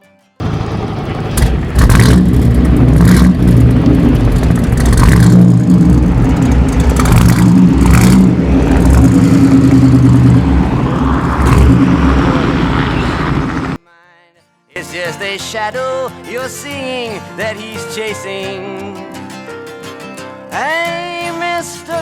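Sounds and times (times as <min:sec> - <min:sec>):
car engine throttle blips: 0:00.4 - 0:13.8.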